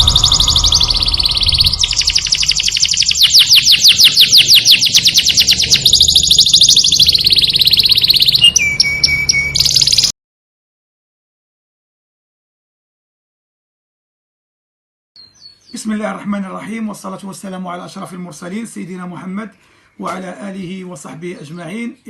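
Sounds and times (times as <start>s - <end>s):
songbird trilling: 0.0s - 10.1s.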